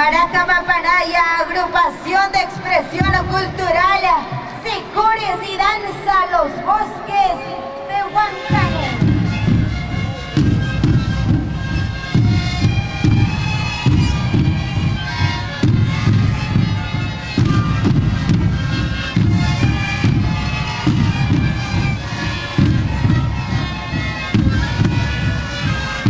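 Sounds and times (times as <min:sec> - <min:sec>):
bass drums beating: 0:02.6 - 0:04.5, 0:08.4 - 0:26.0.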